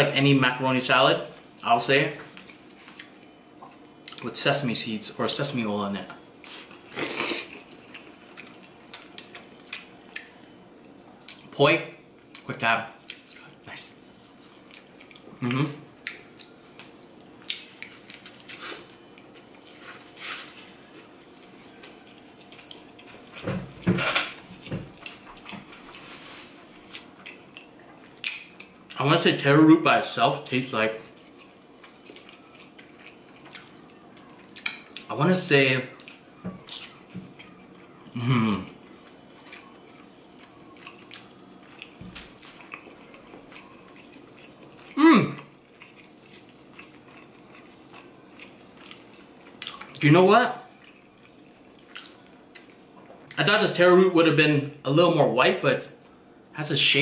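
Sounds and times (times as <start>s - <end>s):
person chewing: 6.4s - 11.5s, 12.2s - 23.4s, 24.1s - 29.0s, 31.0s - 35.1s, 35.9s - 50.0s, 50.7s - 53.4s
person chewing with lip smacks: 31.2s - 35.1s, 39.0s - 50.0s, 50.8s - 53.4s
short vocal sound: 38.2s - 38.7s, 45.0s - 45.4s.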